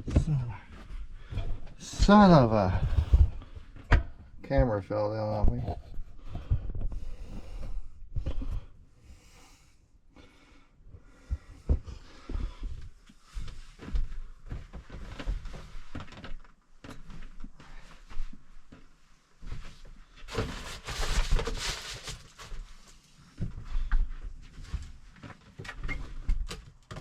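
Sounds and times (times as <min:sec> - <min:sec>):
rustling: 0:19.5 - 0:23.1.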